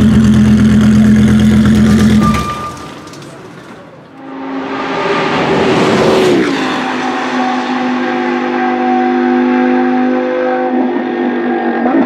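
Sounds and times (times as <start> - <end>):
racing car engine passing by: 4.2 - 12.0.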